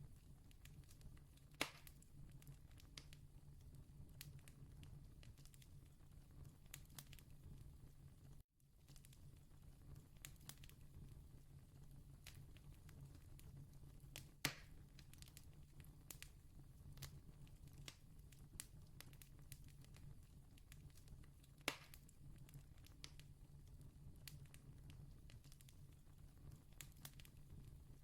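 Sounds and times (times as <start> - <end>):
loud fire snaps: 0.4 - 3.3, 4.1 - 7.4, 8.8 - 11.0, 12.1 - 28.0
campfire crackling: 8.9 - 11.1, 17.0 - 28.0.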